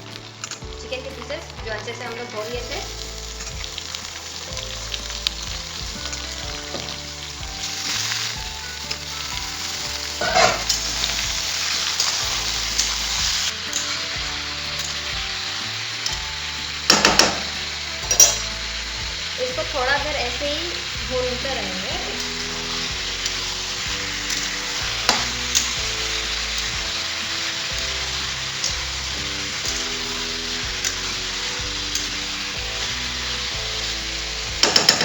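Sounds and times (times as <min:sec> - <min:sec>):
chicken sizzling in hot oil: 0:00.0 - 0:35.0.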